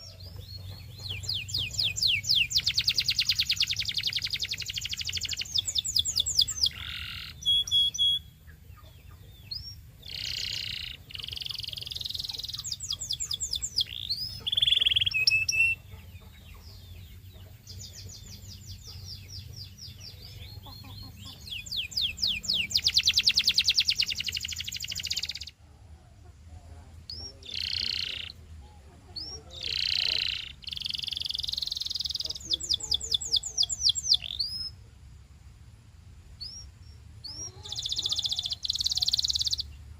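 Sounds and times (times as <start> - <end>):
canary singing trills: 0.0 - 34.9, 36.4 - 39.9.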